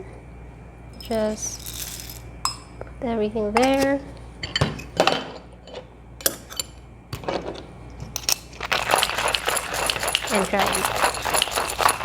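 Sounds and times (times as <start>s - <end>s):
coffee beans clattering: 1.0s - 2.3s, 8.3s - 12.0s
hand grinder crushing beans: 1.6s - 2.2s, 8.4s - 12.0s.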